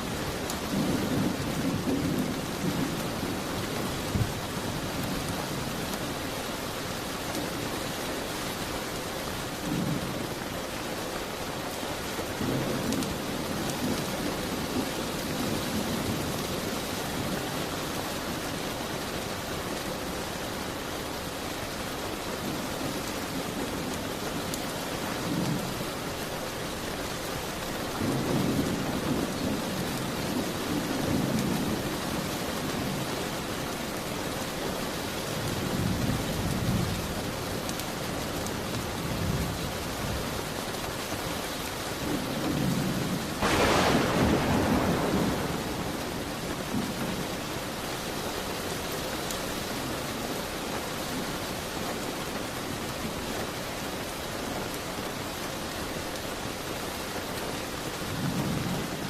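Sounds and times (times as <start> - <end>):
steady rain: 0.0 - 59.0
thunder rolling: 43.4 - 47.6.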